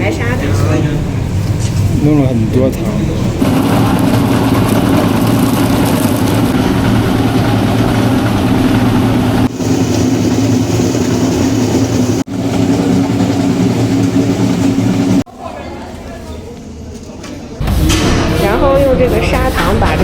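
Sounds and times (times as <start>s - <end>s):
electric mill motor grinding: 3.4s - 15.2s.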